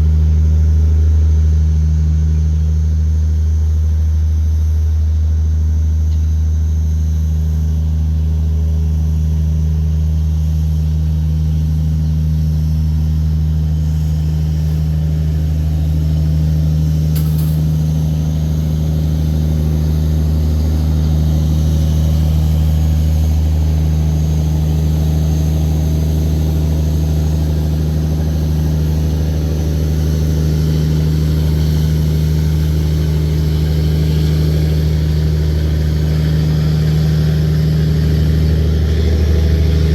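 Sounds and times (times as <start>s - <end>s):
diesel engine drone: 0.0s - 39.9s
brief click: 17.1s - 17.6s.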